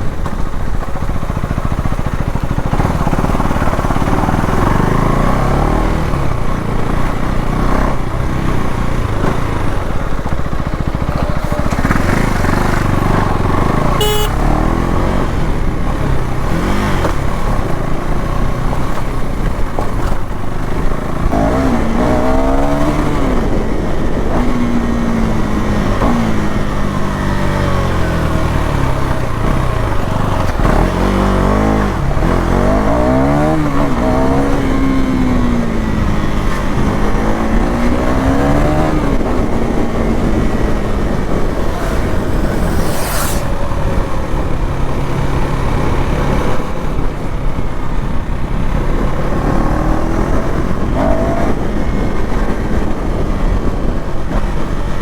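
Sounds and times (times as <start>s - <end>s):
motorcycle engine revving: 0.0s - 55.0s
brief hiss: 42.5s - 43.7s.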